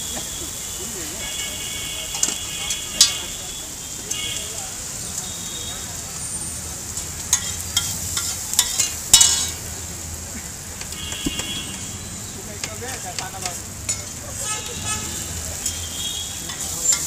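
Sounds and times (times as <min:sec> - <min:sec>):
onion and tomato sizzling: 0:00.0 - 0:17.0
metal utensils clinking and scraping: 0:02.1 - 0:03.3, 0:07.0 - 0:09.7, 0:12.6 - 0:17.0.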